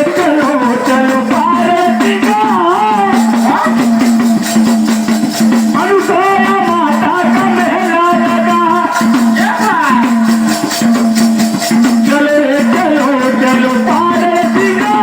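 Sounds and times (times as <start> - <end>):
jingling hand percussion: 0.0 - 15.0
voices singing devotional song: 0.0 - 15.0.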